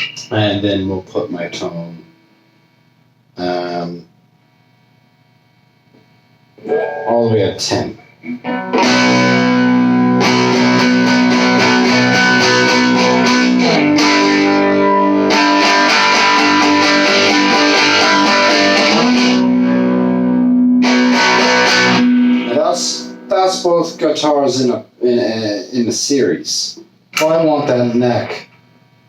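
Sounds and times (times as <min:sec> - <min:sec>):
electric guitar chords: 0:06.6 - 0:24.5.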